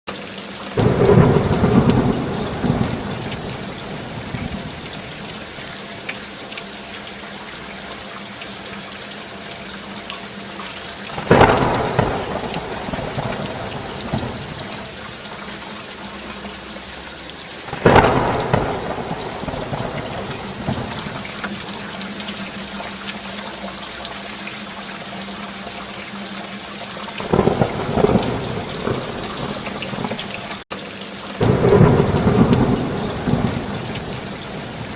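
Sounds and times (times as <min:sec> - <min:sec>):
heavy rain: 0:00.1 - 0:34.9
thunder crashes: 0:00.8 - 0:05.3, 0:11.1 - 0:14.9, 0:17.7 - 0:21.6, 0:27.2 - 0:30.6, 0:31.4 - 0:34.9.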